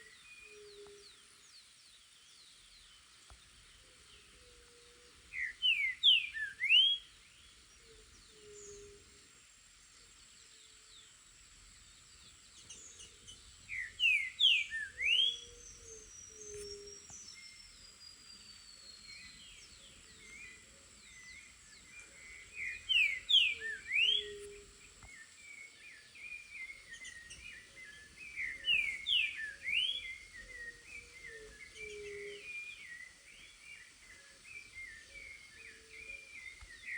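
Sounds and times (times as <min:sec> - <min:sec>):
bird singing whistled phrases: 0:05.4 - 0:07.1, 0:13.7 - 0:15.6, 0:22.6 - 0:24.6, 0:28.4 - 0:33.1
soft bird chirps: 0:12.2 - 0:36.9.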